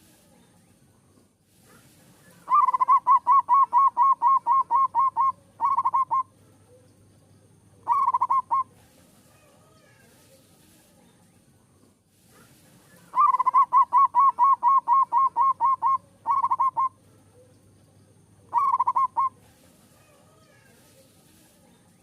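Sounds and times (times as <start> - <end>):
dove cooing: 2.3 - 6.9, 7.8 - 8.8, 13.1 - 17.5, 18.5 - 20.2.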